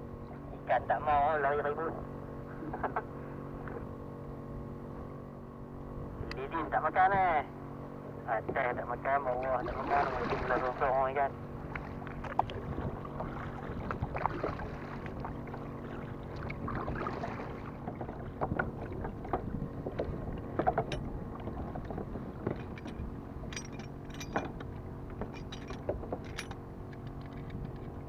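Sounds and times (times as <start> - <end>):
water lapping against a kayak: 8.4 - 23.5
gear knocking on a boat: 9.3 - 28.0.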